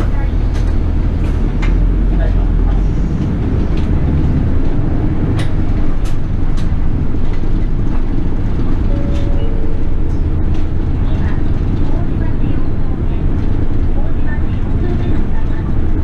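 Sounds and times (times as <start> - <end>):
bus engine and road rumble: 0.0 - 16.0
two-note tone: 8.8 - 11.5.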